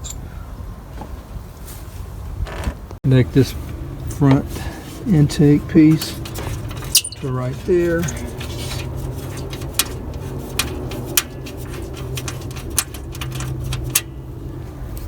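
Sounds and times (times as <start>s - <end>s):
steady low hum: 3.1s - 15.0s
plastic parts clicking together: 6.0s - 14.2s.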